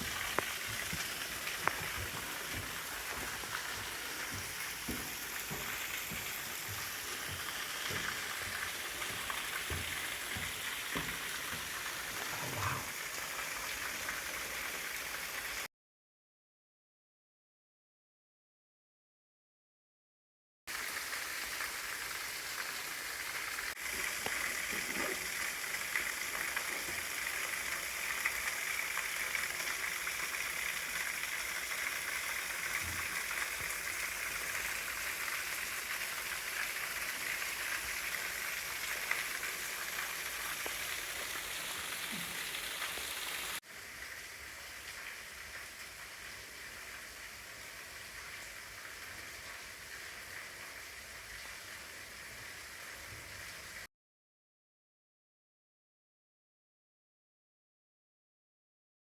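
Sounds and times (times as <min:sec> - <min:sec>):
waterfall splashing: 0:00.0 - 0:15.7, 0:20.7 - 0:43.6.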